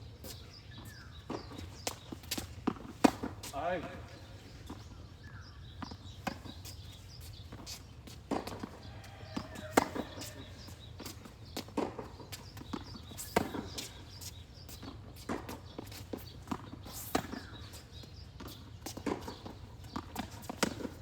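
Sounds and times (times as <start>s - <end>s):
footsteps on court: 0.2s - 21.0s
rackets striking tennis ball: 1.2s - 4.0s, 7.5s - 21.0s
ball bouncing on court: 8.3s - 13.9s, 18.4s - 21.0s.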